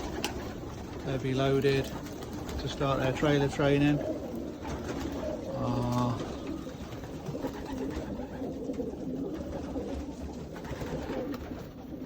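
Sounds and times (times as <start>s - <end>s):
pigeons cooing: 0.0s - 12.0s
rustle of birds moving: 0.0s - 12.0s.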